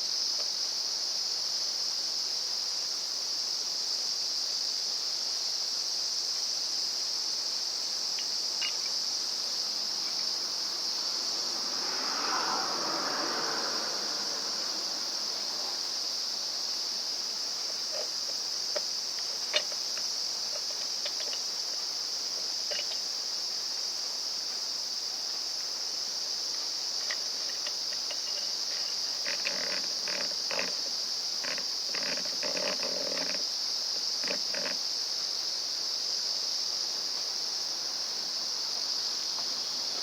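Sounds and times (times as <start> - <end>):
high-pitched insect chorus: 0.0 - 40.0
small clicks: 18.7 - 21.4.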